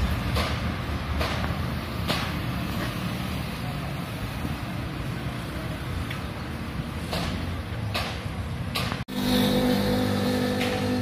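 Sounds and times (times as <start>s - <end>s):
wheels clacking over rail joints: 0.0s - 3.4s, 6.0s - 11.0s
train rumbling: 0.0s - 11.0s.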